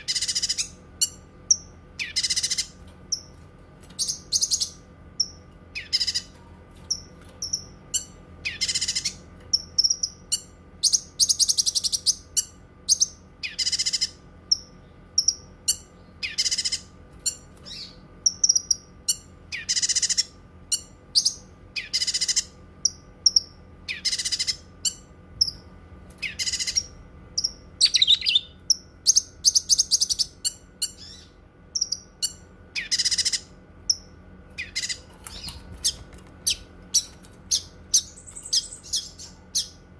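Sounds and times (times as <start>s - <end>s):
bird soft chirps: 26.2s - 28.6s
bird high calls: 26.2s - 39.8s.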